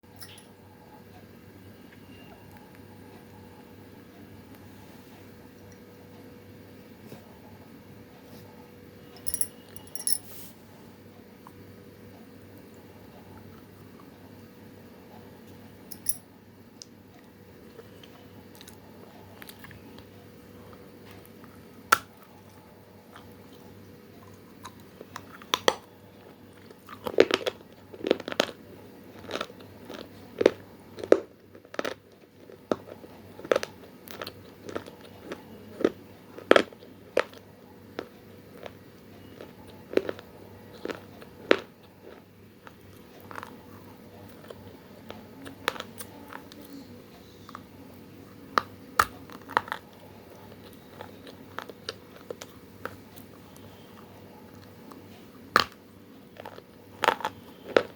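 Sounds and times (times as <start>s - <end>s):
faint steady hum: 0.0s - 57.9s
crunchy chewing: 17.7s - 57.9s.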